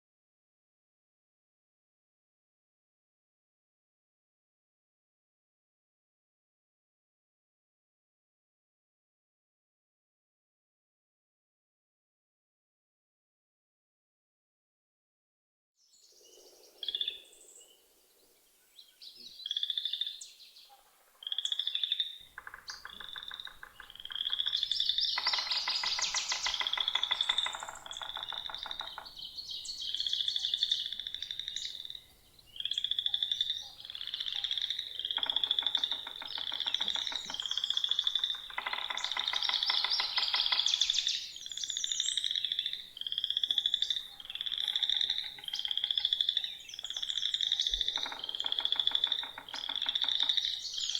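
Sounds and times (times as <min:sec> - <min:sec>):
birds calling: 0:15.9 - 0:50.9
frogs calling: 0:16.1 - 0:18.0, 0:18.8 - 0:50.9.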